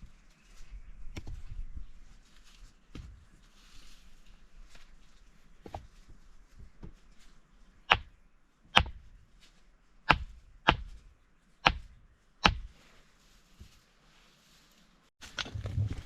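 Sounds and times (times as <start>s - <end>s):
tool chopping wood: 7.9s - 8.1s, 8.7s - 9.0s, 10.1s - 11.0s, 11.6s - 12.7s.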